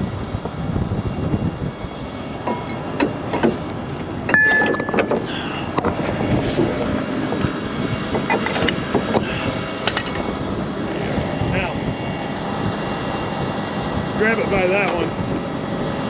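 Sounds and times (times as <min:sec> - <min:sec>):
diesel truck engine running: 0:00.0 - 0:16.0
metallic clanks and knocks: 0:04.2 - 0:07.5, 0:08.1 - 0:09.2, 0:09.8 - 0:10.3.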